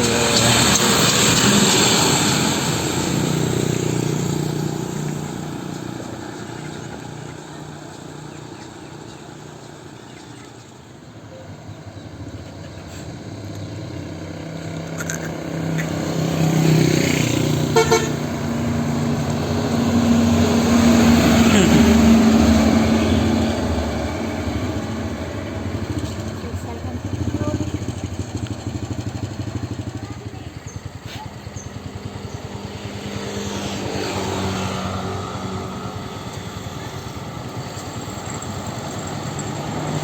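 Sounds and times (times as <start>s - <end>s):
heavy vehicles passing: 0.0s - 40.0s
vehicle horn short toots: 17.7s - 18.2s.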